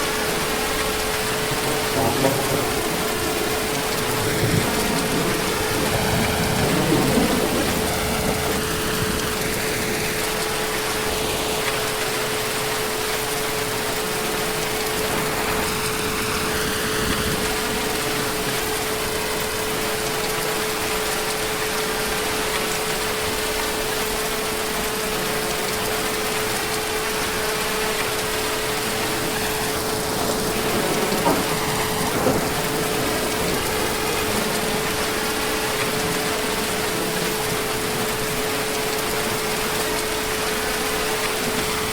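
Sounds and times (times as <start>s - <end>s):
heavy rain falling: 0.0s - 41.9s.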